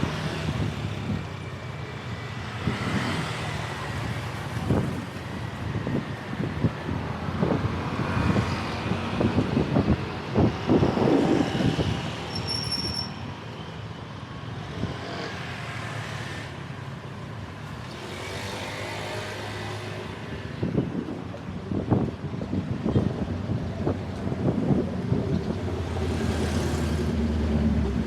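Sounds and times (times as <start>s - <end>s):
road traffic: 0.0s - 28.0s
wind buffeting microphone: 4.0s - 12.3s, 20.1s - 28.0s
high-pitched squeal: 12.2s - 13.3s.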